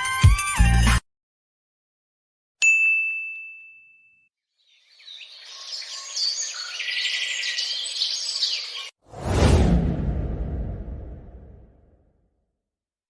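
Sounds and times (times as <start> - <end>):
birds chirping: 4.6 - 8.9.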